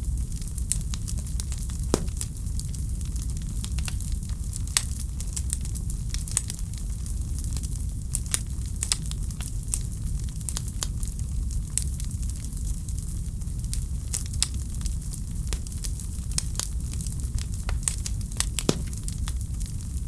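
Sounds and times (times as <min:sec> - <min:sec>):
wood fire crackling and popping: 0:01.9 - 0:02.8, 0:14.2 - 0:19.7.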